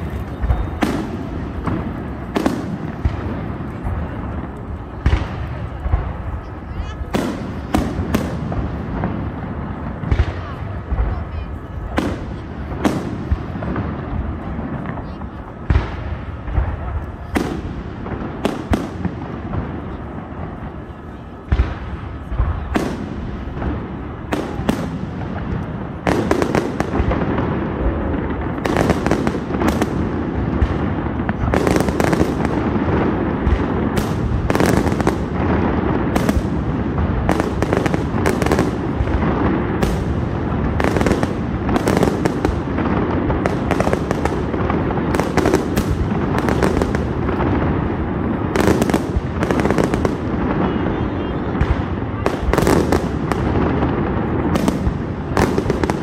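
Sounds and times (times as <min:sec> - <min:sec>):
continuous rumble: 0:00.0 - 0:56.0
fireworks bursting: 0:00.0 - 0:56.0.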